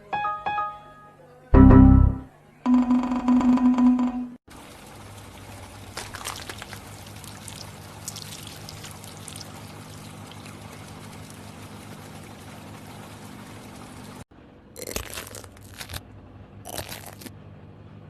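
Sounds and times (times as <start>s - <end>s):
liquid pouring: 4.5s - 14.2s
crackly spurts: 5.8s - 11.5s, 14.8s - 16.0s, 16.7s - 17.3s.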